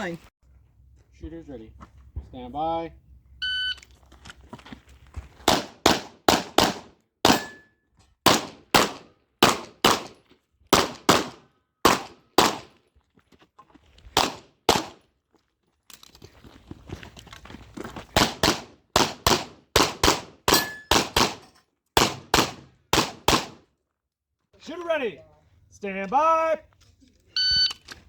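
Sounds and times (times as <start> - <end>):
pistol shots: 5.5 - 7.7, 8.3 - 12.7, 14.2 - 15.0, 18.2 - 21.4, 22.0 - 23.6.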